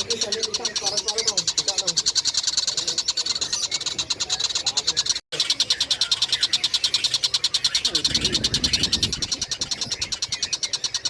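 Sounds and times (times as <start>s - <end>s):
kingfisher chattering call: 0.0s - 11.0s.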